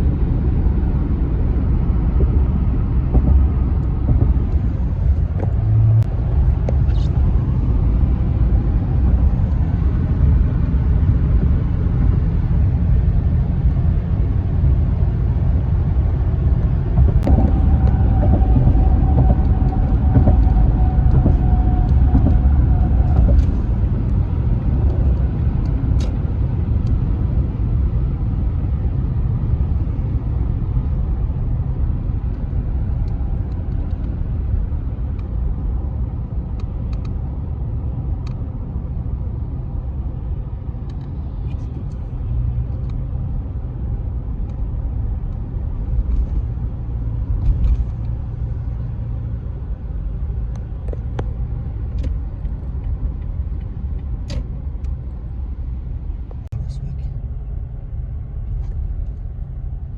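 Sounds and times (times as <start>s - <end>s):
vehicle rumble: 0.0s - 59.9s
steady tone with faint ticks: 32.2s - 34.3s, 35.1s - 35.4s, 36.3s - 37.2s, 38.2s - 38.4s, 40.8s - 43.2s, 44.4s - 46.6s, 50.4s - 55.2s.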